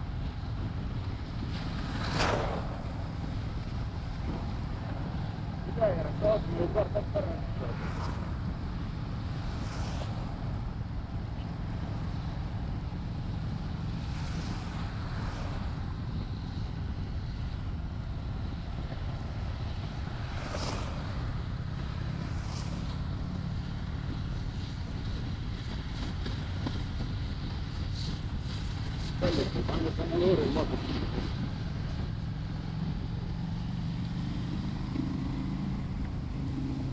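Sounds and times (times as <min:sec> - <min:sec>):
wind and road hiss: 0:00.0 - 0:36.9
motorcycle engine running: 0:10.4 - 0:36.9.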